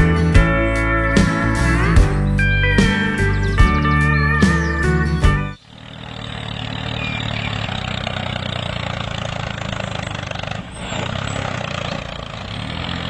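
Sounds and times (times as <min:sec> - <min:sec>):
model tractor engine running: 0:05.6 - 0:13.0.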